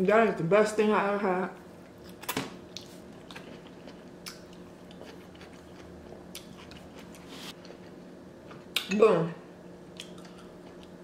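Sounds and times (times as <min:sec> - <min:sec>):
person chewing food: 0:01.8 - 0:08.8, 0:09.9 - 0:11.0.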